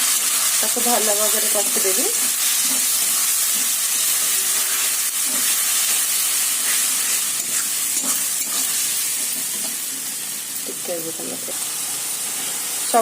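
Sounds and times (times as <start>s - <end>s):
paste sizzling in hot oil: 0.0s - 13.0s
spatula scraping and stirring: 1.4s - 10.2s.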